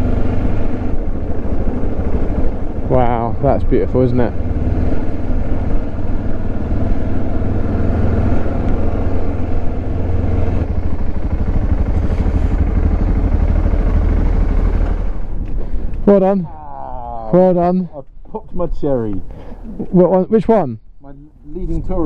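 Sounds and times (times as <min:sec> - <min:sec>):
motorcycle engine droning: 0:00.0 - 0:17.2.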